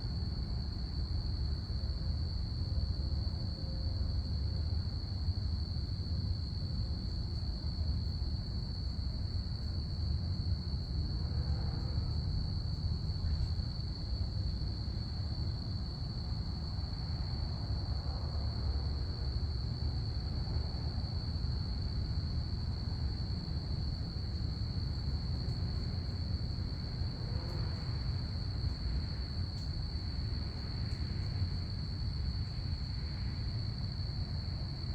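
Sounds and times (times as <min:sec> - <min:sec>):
crickets chirping: 0:00.0 - 0:34.9
low steady rumble: 0:08.0 - 0:34.9.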